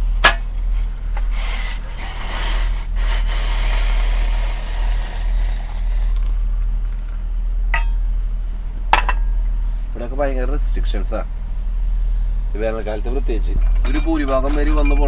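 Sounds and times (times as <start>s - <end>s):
rustling scraping noise: 0.0s - 4.8s.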